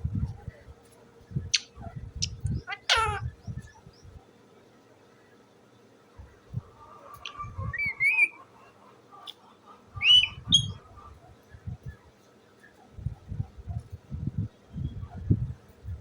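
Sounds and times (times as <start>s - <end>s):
parrot whistling calls: 2.5s - 3.3s, 7.2s - 8.4s, 10.0s - 10.8s.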